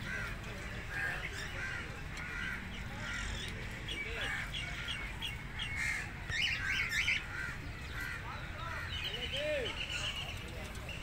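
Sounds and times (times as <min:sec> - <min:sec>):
birds calling and chattering: 0:00.0 - 0:11.0.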